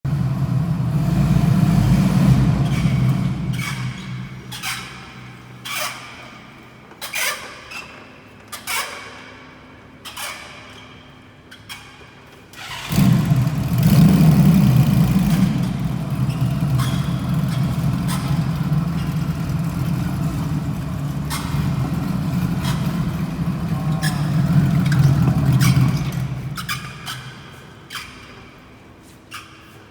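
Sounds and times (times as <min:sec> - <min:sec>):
motorcycle drive humming: 0:00.1 - 0:05.2, 0:12.8 - 0:27.3
wheel bearing squealing: 0:02.6 - 0:09.0, 0:12.6 - 0:28.7.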